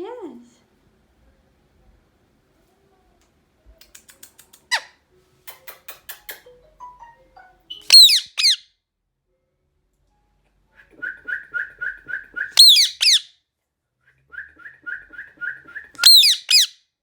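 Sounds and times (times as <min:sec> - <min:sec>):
parakeet screeches: 0:04.7 - 0:05.0, 0:07.7 - 0:08.6, 0:12.6 - 0:13.3, 0:16.0 - 0:16.7
parakeet squawk: 0:04.7 - 0:05.0, 0:07.7 - 0:08.6, 0:12.6 - 0:13.3, 0:16.0 - 0:16.8
parakeet clicking chatter: 0:05.5 - 0:06.5, 0:07.7 - 0:08.6, 0:12.6 - 0:13.2, 0:16.0 - 0:16.7.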